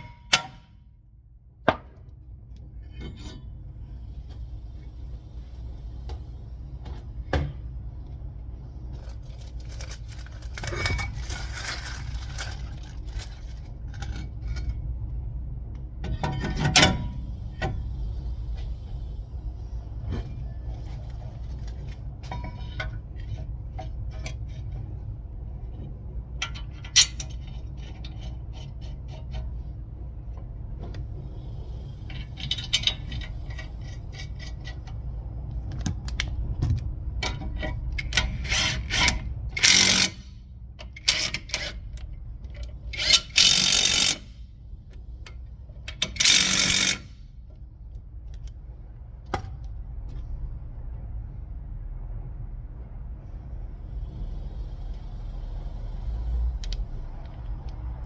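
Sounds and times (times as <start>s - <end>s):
steady low hum: 0.0s - 58.0s
metal tools clinking and scraping: 9.1s - 14.7s.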